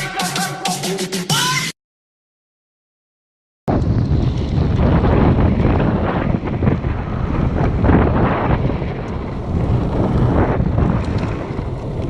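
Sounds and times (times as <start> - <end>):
wind buffeting microphone: 3.7 - 12.0.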